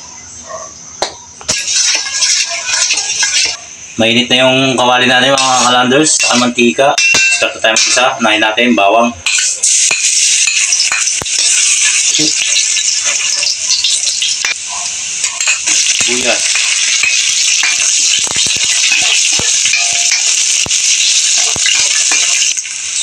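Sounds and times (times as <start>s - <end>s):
garlic and onion sizzling in oil: 1.5s - 4.0s, 4.8s - 8.5s, 9.2s - 23.0s
metal ladle scraping a wok: 1.6s - 3.6s, 15.2s - 22.6s.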